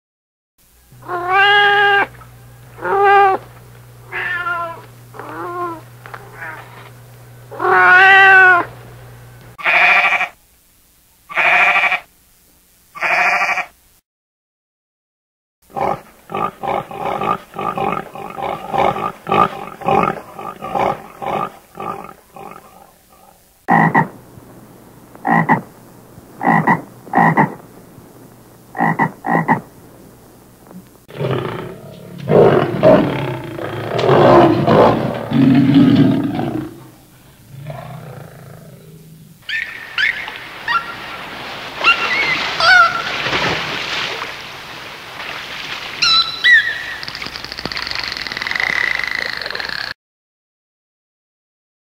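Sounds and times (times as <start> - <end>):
long rough animal call: 2.8 - 3.4, 4.0 - 6.9, 7.5 - 8.7, 13.0 - 13.7, 15.7 - 24.2, 25.2 - 27.7, 28.7 - 29.7, 31.1 - 40.1
short animal calls: 9.6 - 10.4, 11.3 - 12.1, 13.0 - 13.8, 26.4 - 27.6
rapid repeated animal calls: 13.0 - 13.7, 15.7 - 24.2, 25.2 - 25.7, 26.4 - 27.6, 28.7 - 29.7, 46.0 - 50.0
high chirping calls: 39.4 - 41.0, 46.0 - 49.8.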